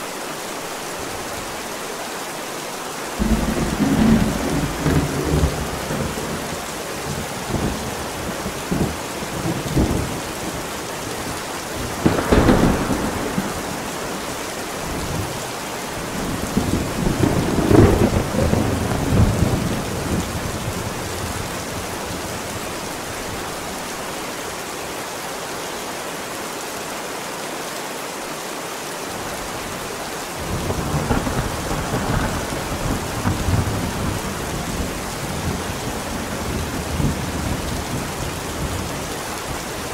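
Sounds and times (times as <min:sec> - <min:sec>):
heavy rain: 0:00.0 - 0:39.9
thunder rumbling: 0:03.2 - 0:22.6, 0:30.4 - 0:39.6.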